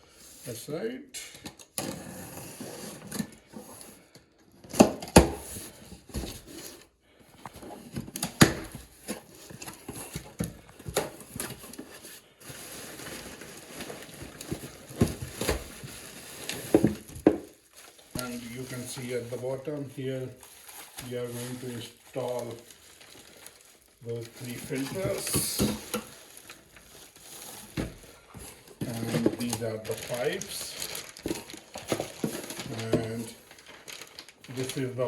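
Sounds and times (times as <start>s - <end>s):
packaging rustling: 1.9s - 35.0s.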